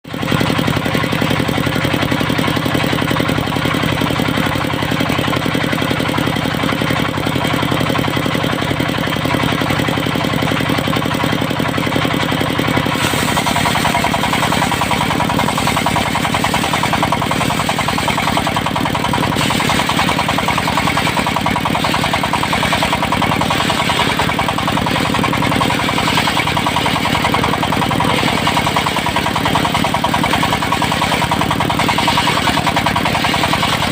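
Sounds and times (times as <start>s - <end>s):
sawmill engine running: 0.1s - 33.9s
bright higher sawing sound: 12.8s - 27.4s.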